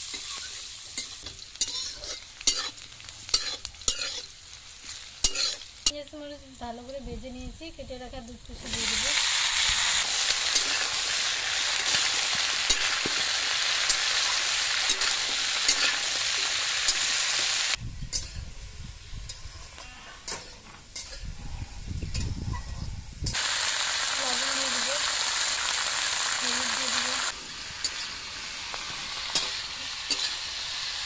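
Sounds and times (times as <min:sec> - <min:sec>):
steel spatula scraping: 0:00.0 - 0:05.6, 0:14.9 - 0:16.1, 0:27.8 - 0:28.2, 0:29.3 - 0:30.5
vegetables sizzling in hot oil: 0:00.0 - 0:19.8, 0:23.2 - 0:31.0.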